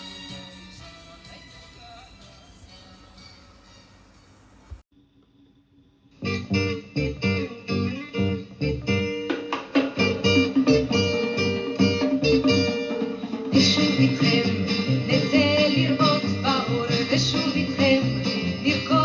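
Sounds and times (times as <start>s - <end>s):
plucked and strummed guitar: 6.3s - 18.8s.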